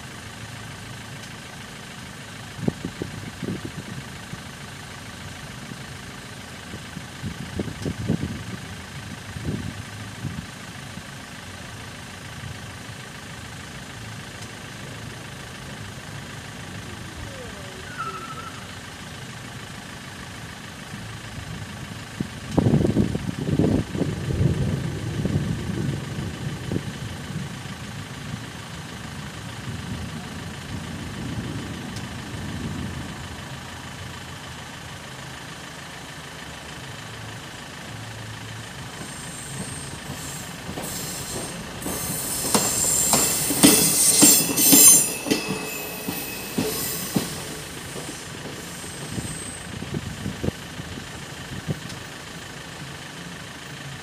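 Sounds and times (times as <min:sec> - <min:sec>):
car engine idling: 0:00.0 - 0:54.0
train wheels clattering and squealing: 0:17.4 - 0:19.0, 0:38.8 - 0:50.5.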